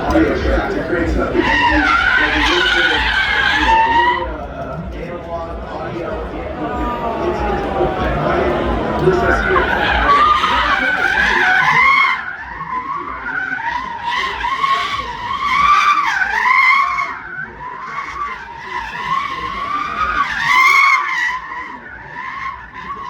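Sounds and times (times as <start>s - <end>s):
car engine: 0.0s - 23.0s
car tyres squealing: 0.0s - 23.0s.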